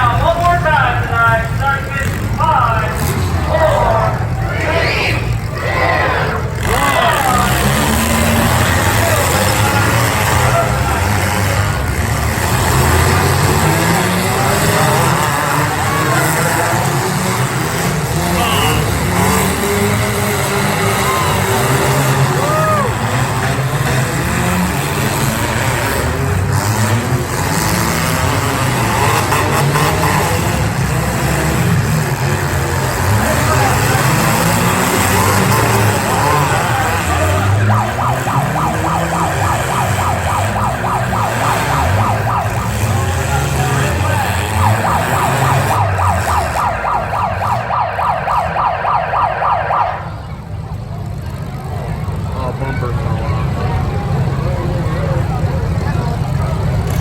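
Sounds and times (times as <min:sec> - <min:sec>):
car engines revving: 0:00.0 - 0:57.0
electronic siren yelping: 0:33.9 - 0:50.3.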